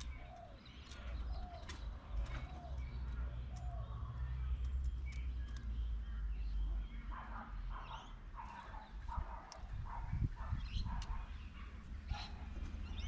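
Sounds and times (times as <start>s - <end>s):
bird harsh calls: 5.2s - 13.0s.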